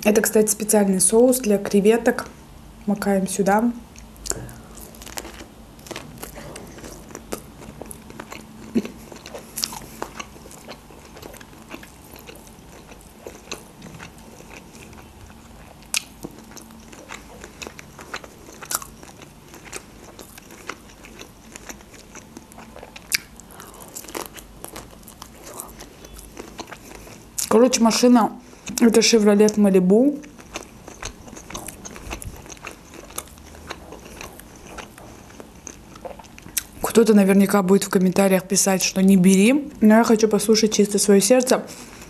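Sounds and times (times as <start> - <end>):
person chewing shellfish: 3.9 - 27.5, 30.2 - 36.8.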